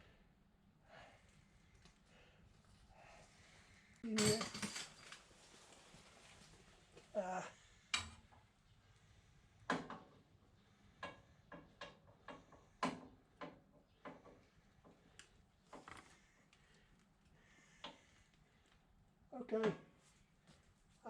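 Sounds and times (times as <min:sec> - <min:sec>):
metal tools clinking: 0:04.0 - 0:05.3.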